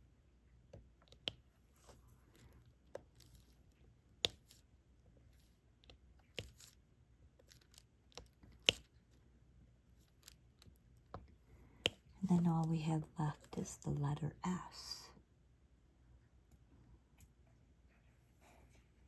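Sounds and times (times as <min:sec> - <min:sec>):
drill pen clicking and tapping: 0:07.4 - 0:09.0.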